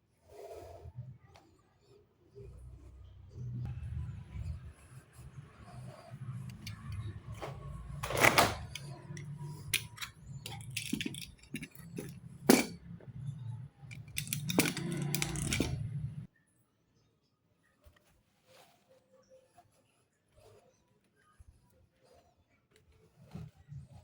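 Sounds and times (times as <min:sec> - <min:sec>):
scrapes: 0:02.5 - 0:16.3
clicks and knocks: 0:06.4 - 0:13.2, 0:13.9 - 0:16.3.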